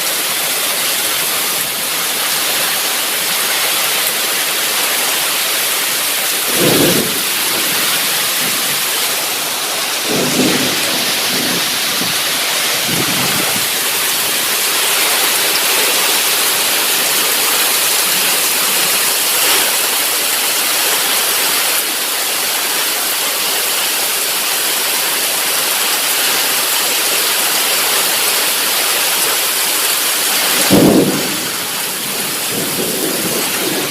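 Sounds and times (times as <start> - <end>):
heavy rain pouring: 0.0 - 33.9
low thunder rumbles: 6.2 - 16.8, 30.4 - 33.9.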